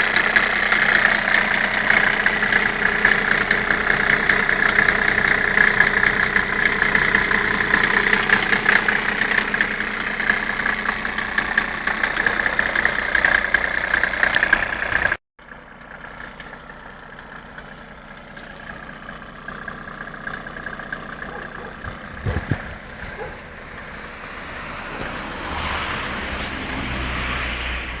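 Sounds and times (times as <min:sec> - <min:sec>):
engine knocks: 0:00.0 - 0:27.3
diesel engine idling: 0:00.0 - 0:28.0.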